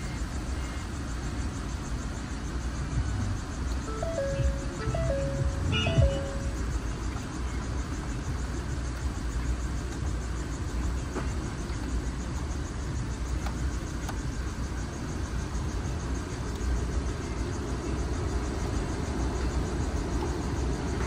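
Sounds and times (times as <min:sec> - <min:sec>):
car engine idling: 0:00.1 - 0:11.0.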